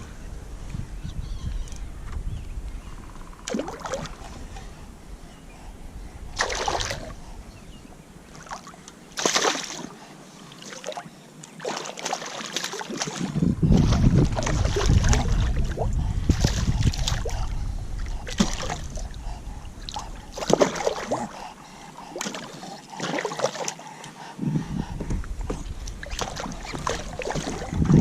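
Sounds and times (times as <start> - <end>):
wind buffeting microphone: 0.0 - 8.2, 13.0 - 22.2, 24.2 - 28.0
water splashing: 3.5 - 4.4, 6.4 - 7.1, 8.3 - 23.9, 25.8 - 28.0.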